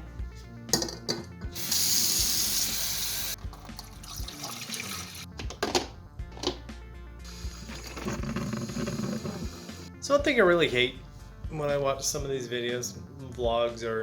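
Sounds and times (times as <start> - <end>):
water running from tap: 1.6 - 5.3, 7.3 - 9.9.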